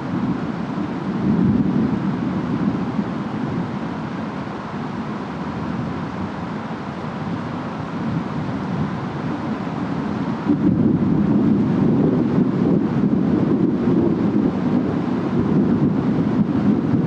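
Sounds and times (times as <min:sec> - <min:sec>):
rain: 0:00.0 - 0:17.0
wind: 0:00.0 - 0:17.0.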